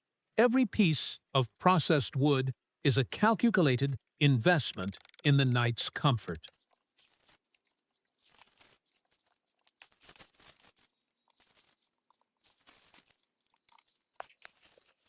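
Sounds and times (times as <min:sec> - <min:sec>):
faint crackles and rustles: 0:06.5 - 0:15.0.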